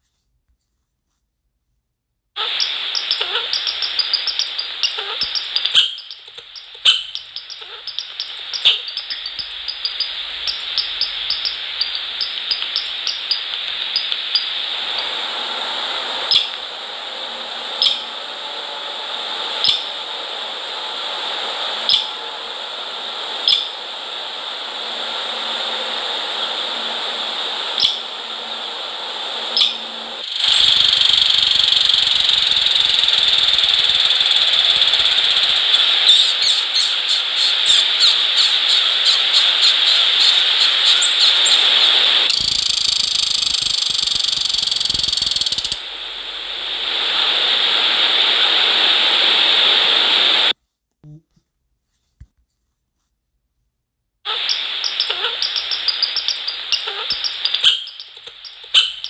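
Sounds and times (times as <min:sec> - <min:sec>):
steady hiss: 0:02.4 - 0:50.6, 0:54.3 - 0:59.0
small birds ticking: 0:02.6 - 0:14.6, 0:30.2 - 0:45.8, 0:54.5 - 0:59.0.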